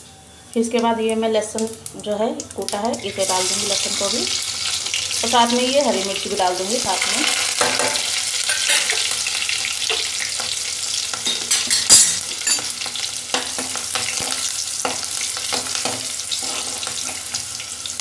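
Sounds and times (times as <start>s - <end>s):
garlic sizzling in hot oil: 0.6s - 18.0s
metal spoon stirring: 11.2s - 12.7s.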